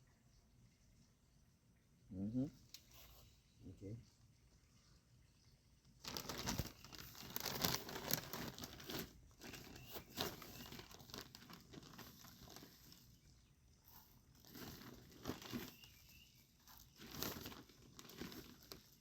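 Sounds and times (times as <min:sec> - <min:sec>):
plant and soil crinkling rustle: 0:04.8 - 0:19.0.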